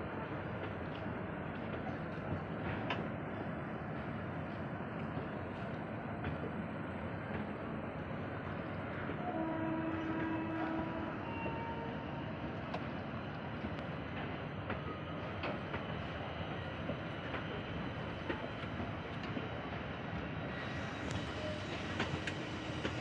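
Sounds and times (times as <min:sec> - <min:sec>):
train wheels rumbling on track: 0:00.0 - 0:23.0
train horn: 0:09.1 - 0:12.4.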